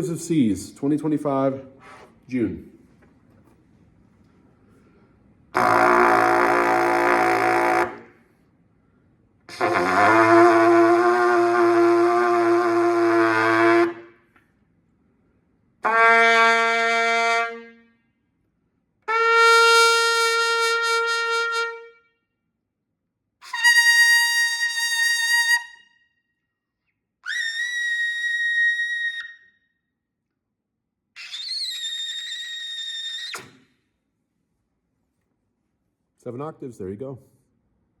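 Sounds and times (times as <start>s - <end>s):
trumpet playing held notes: 5.6s - 8.1s, 9.5s - 14.1s, 15.8s - 17.7s, 19.1s - 21.9s, 23.4s - 25.6s.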